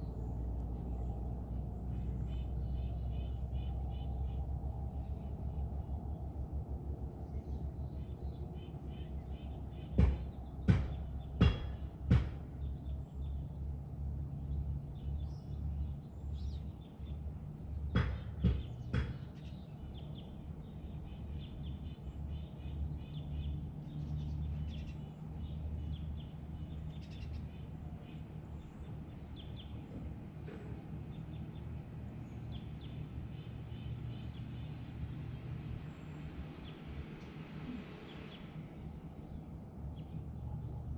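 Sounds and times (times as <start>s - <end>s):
steady low rumble: 0.0s - 40.9s
small birds chirping: 7.0s - 40.9s
sharp taps or knocks: 10.0s - 12.4s, 18.0s - 19.4s.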